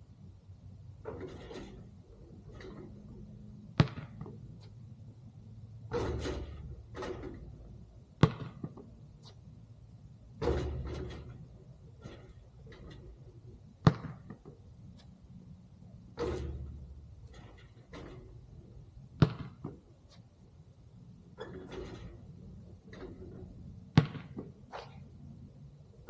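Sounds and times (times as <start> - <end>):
soft noisy sounds: 0.0 - 26.0
basketball striking: 1.0 - 4.6, 5.9 - 9.3, 10.3 - 14.7, 16.0 - 20.2, 21.4 - 25.1.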